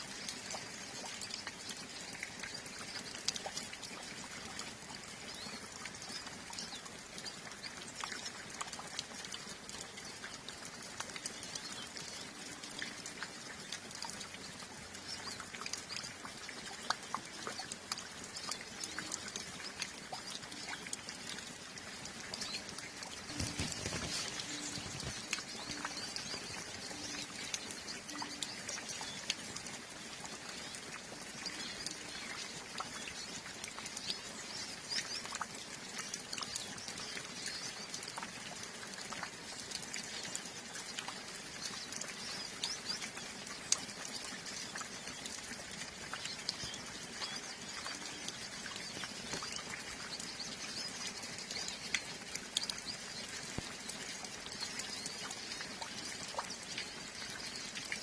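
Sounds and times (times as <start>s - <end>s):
light rain: 0.0s - 58.0s
water drips: 0.0s - 58.0s
flock of birds twittering: 22.4s - 29.3s.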